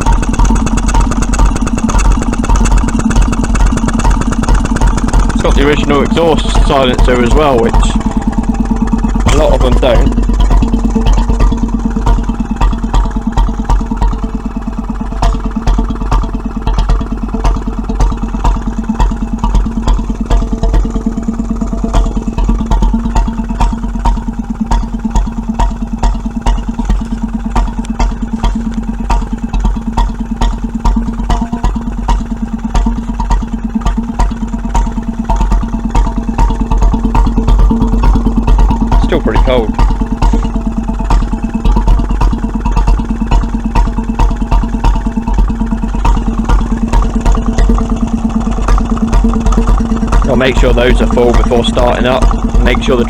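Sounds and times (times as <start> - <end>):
stationary engine running: 0.0 - 53.0.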